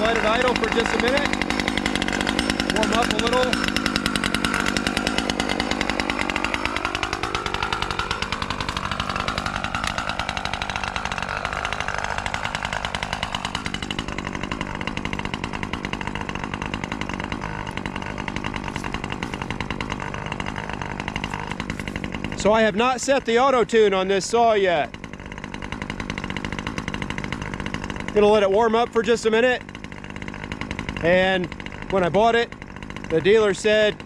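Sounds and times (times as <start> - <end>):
chainsaw engine idling: 0.0 - 34.0.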